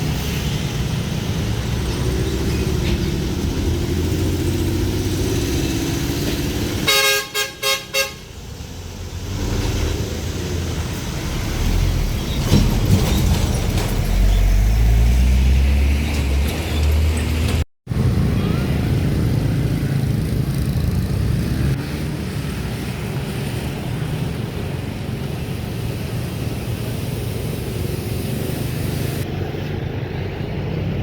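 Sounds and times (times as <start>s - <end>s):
heavy truck engines passing: 0.0s - 31.0s
vehicle horn toots: 6.8s - 8.3s.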